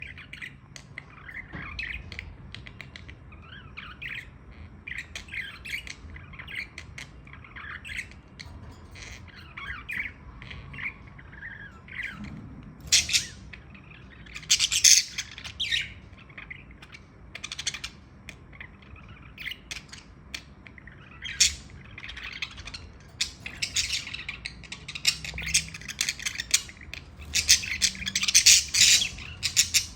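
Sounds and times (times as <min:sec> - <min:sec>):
budgerigar chattering and chirping: 0:00.0 - 0:29.9.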